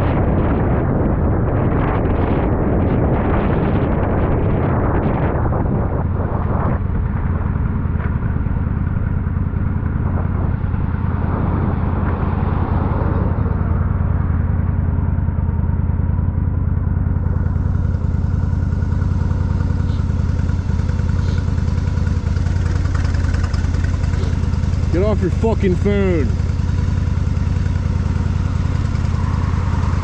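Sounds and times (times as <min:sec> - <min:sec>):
motorcycle engine running: 0:00.0 - 0:30.0
rushing noise: 0:26.5 - 0:30.0.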